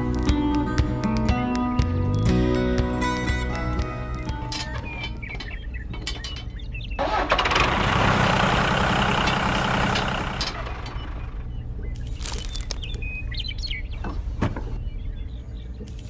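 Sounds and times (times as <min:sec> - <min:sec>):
engine humming: 0:00.0 - 0:16.0
bird chirps: 0:04.7 - 0:07.0, 0:10.9 - 0:16.0.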